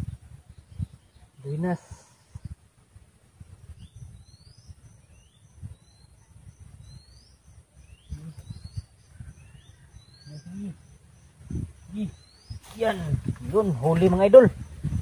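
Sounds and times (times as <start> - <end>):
insect chirping: 0.0 - 15.0
birds whistling upward notes: 3.7 - 10.7, 11.5 - 13.0.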